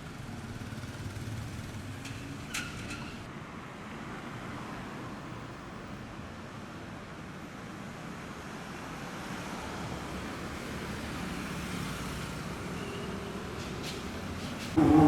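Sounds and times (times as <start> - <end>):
street traffic noise: 0.0 - 15.0
low held tones: 14.8 - 15.0.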